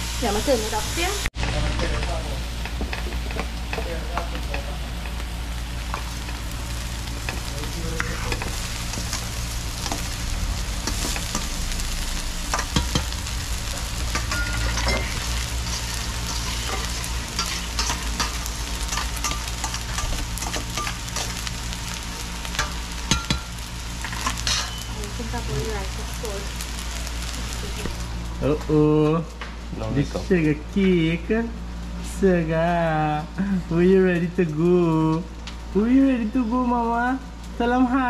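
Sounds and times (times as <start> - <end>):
food sizzling in a pot: 0.0 - 38.0.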